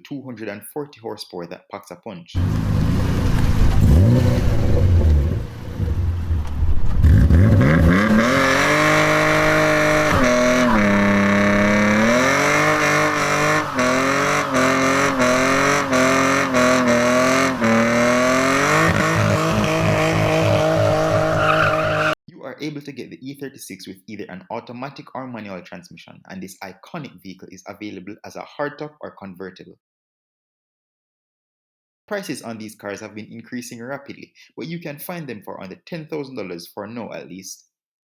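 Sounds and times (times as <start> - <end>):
car engine revving: 2.4 - 22.2.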